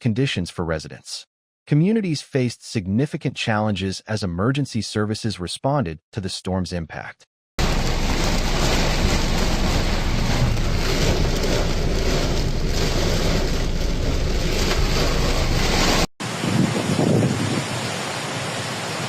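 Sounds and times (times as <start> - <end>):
wind buffeting microphone: 7.6 - 18.0
storm rushing noise: 7.6 - 19.0.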